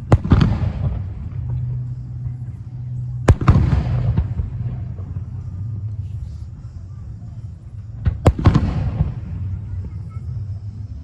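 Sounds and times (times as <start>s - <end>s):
fireworks bangs: 0.0s - 1.6s, 8.1s - 9.5s
rumbling echo: 0.0s - 6.7s.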